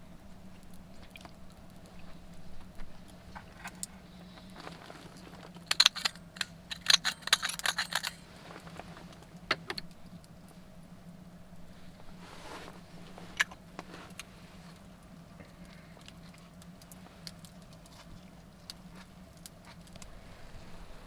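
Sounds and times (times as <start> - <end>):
metal utensils clinking: 5.7 - 8.2.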